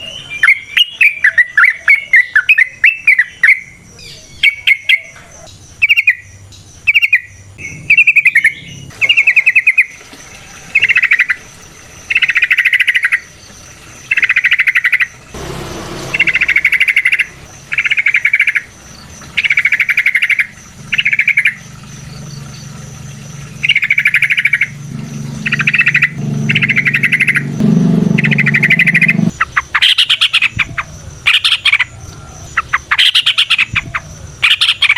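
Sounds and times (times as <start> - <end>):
bird singing: 0.0 - 34.9
low hum: 7.4 - 10.8, 15.0 - 29.9.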